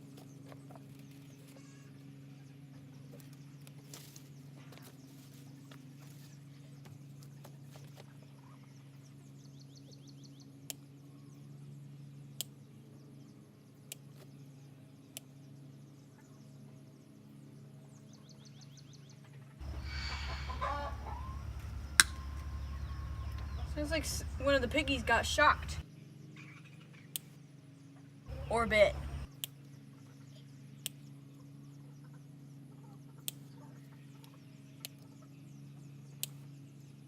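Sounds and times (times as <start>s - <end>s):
steady low hum: 0.0s - 37.0s
wavering squealing cries: 19.6s - 24.4s
poultry clucking: 19.6s - 25.8s.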